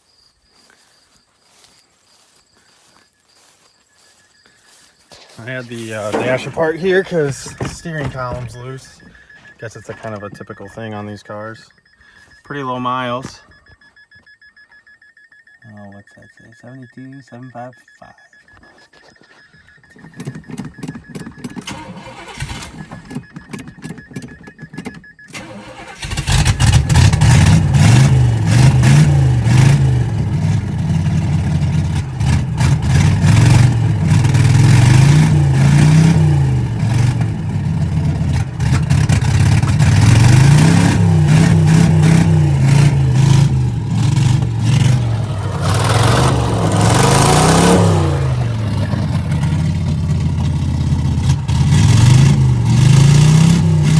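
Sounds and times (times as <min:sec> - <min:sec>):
thin electronic beep: 0:02.3 - 0:25.6
clicks: 0:05.1 - 0:27.3
car engine revving roughly: 0:05.4 - 0:11.4, 0:20.1 - 0:23.3, 0:25.4 - 0:53.9.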